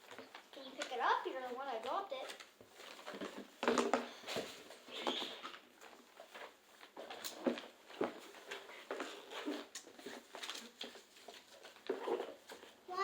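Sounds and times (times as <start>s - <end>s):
paper cards handled: 6.2s - 12.8s.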